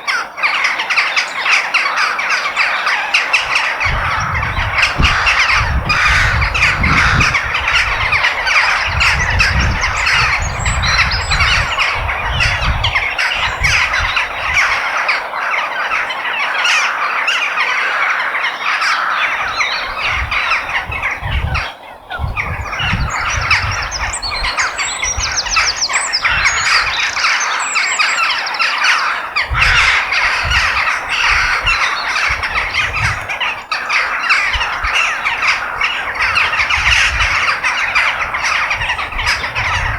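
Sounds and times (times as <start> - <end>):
crows cawing: 0.0 - 21.8, 22.6 - 39.9.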